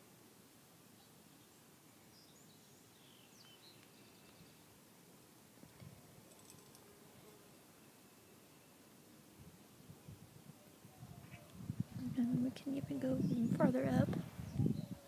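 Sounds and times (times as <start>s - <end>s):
distant bird chirps: 0.9s - 4.8s, 6.3s - 9.2s.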